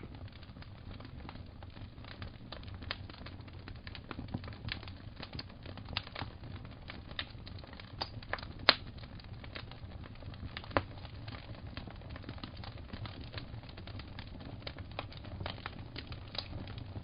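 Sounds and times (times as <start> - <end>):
fire crackling and popping: 0.0 - 17.0
low rumble of fire: 0.0 - 17.0.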